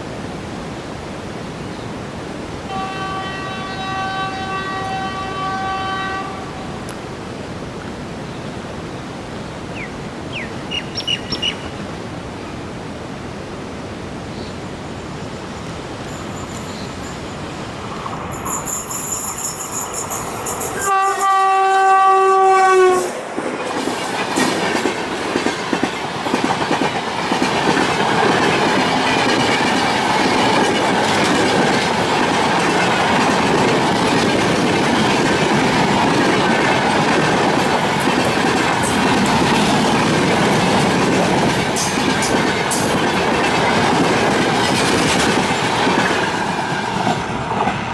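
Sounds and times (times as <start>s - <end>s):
train horn blast: 2.7s - 6.9s, 20.8s - 23.2s
train wheels clattering over rail joints: 23.3s - 47.9s.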